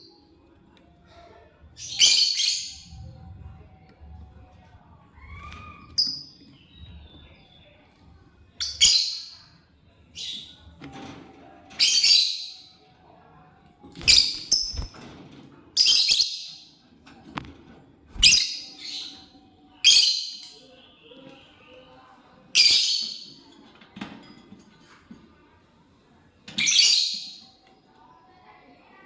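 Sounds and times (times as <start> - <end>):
lovebird shrill chirps: 18.2 - 19.0.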